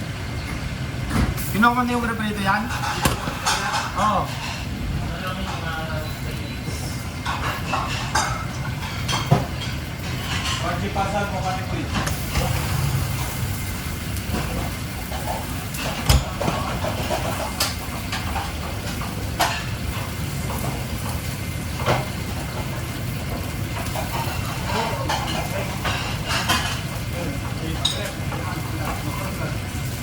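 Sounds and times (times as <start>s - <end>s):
metal utensils clanking: 2.5s - 4.7s.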